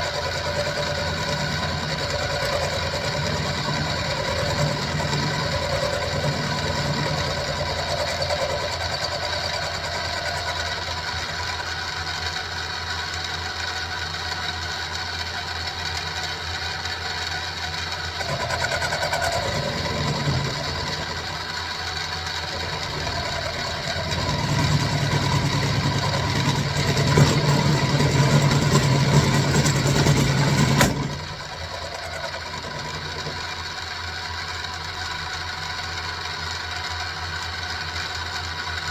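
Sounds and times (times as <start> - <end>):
end mill cutting steel: 0.0 - 12.0, 18.2 - 33.9
milling machine motor whining: 0.0 - 13.3, 18.0 - 36.0.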